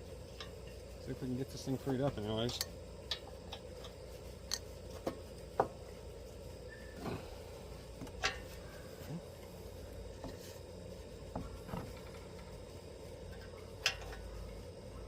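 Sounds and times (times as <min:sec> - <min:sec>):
steady faint hum: 0:00.0 - 0:15.0
hand tools clicking on metal: 0:02.4 - 0:04.7.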